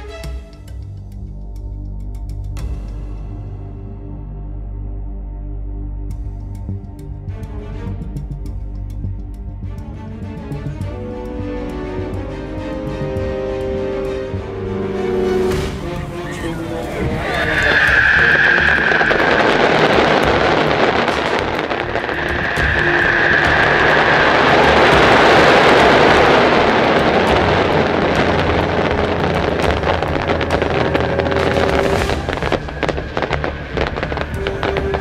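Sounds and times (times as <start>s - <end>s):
firework rockets roaring: 16.8s - 35.0s
firework cracks and bangs: 17.0s - 35.0s.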